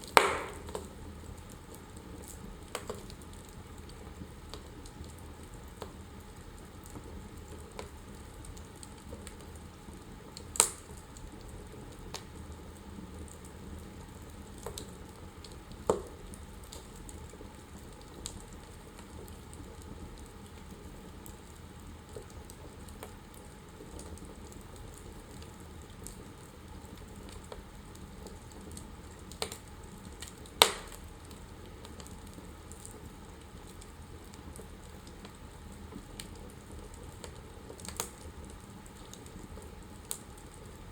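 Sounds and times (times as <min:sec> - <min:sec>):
sharp fire pops: 0:00.0 - 0:00.9, 0:30.6 - 0:31.1
wood fire crackling: 0:00.0 - 0:40.9.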